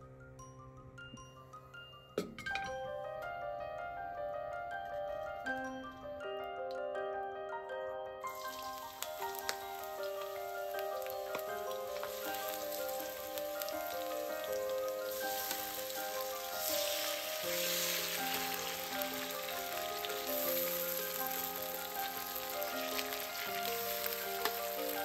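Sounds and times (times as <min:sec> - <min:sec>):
background music with held notes: 0:00.0 - 0:25.0
ginger sizzling in hot oil: 0:08.3 - 0:25.0.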